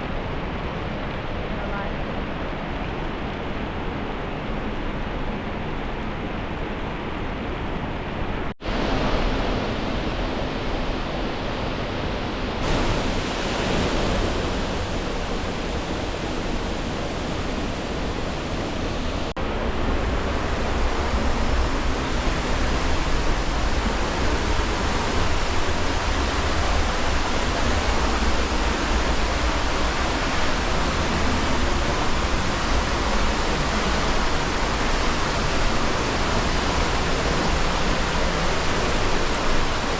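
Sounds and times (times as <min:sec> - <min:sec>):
waterfall rushing: 0:12.6 - 0:39.9.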